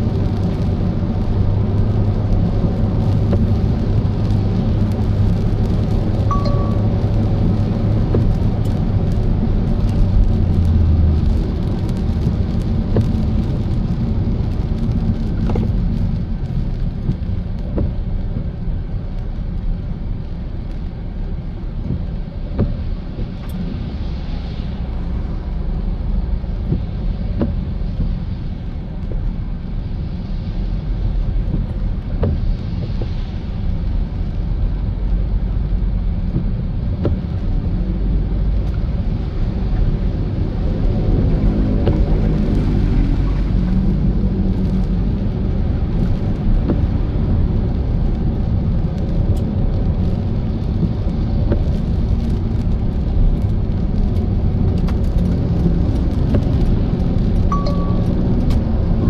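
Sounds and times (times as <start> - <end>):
car engine and road noise: 0.0 - 59.0
light ticks: 8.1 - 13.7.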